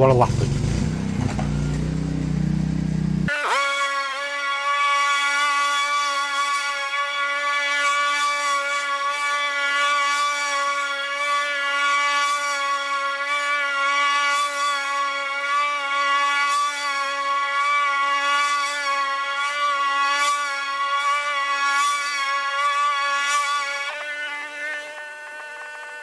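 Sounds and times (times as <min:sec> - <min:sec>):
lawnmower cutting grass: 0:00.0 - 0:26.0.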